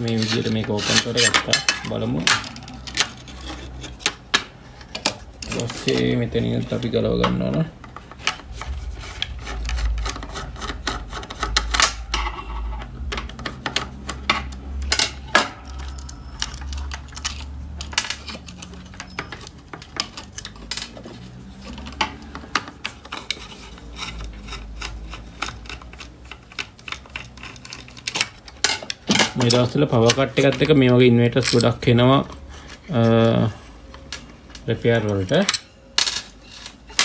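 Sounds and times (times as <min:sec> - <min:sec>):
metal screws clicking and rattling: 0:13.0 - 0:21.1, 0:21.8 - 0:31.9.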